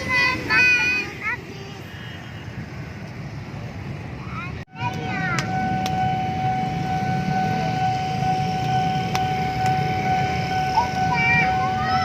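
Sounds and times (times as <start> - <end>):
train rumbling past: 3.4 - 12.0.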